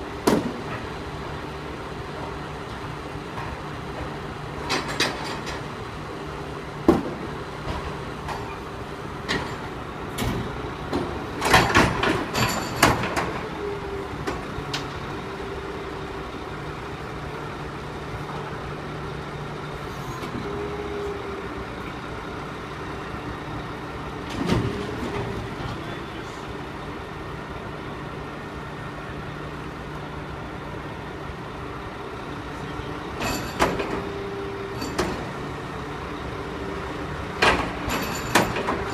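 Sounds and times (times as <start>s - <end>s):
garbage truck engine hum: 0.0s - 38.9s
metal clanks and clatter: 4.6s - 5.7s, 9.2s - 13.6s, 33.2s - 35.4s, 37.4s - 38.9s.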